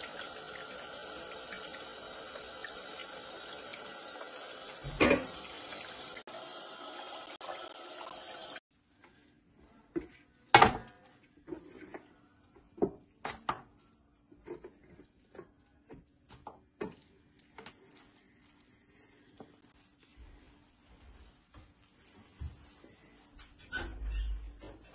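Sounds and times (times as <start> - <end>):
cooking knocks and clatter: 4.8 - 5.5.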